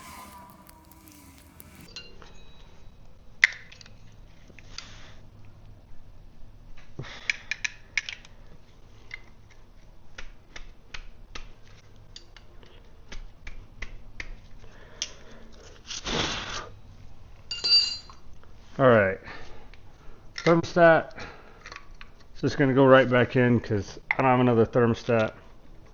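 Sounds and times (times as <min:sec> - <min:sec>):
rustle or scrape: 0:00.0 - 0:02.0.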